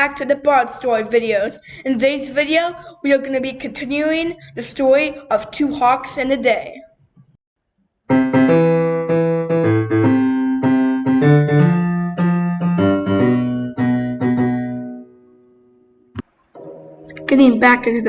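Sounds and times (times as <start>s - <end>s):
piano chords: 8.1s - 18.0s.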